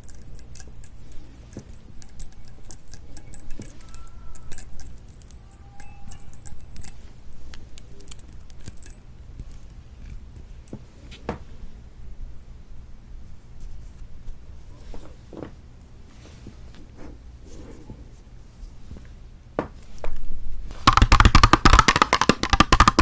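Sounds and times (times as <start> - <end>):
crunchy candy eating clicks: 20.9 - 23.0.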